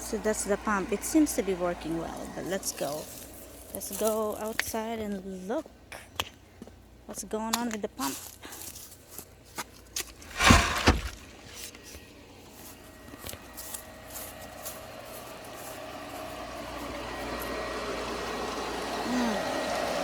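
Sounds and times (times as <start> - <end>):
pool pump motor humming: 0.0 - 3.8, 12.9 - 20.0
light footsteps: 10.1 - 11.1
sharp thumps: 10.2 - 11.2.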